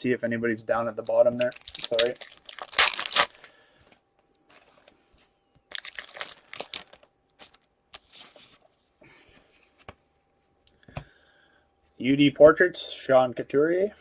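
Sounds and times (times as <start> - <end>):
foil wrapper crinkling and tearing: 0.9 - 3.6, 5.7 - 8.4
cards being handled: 1.0 - 3.3.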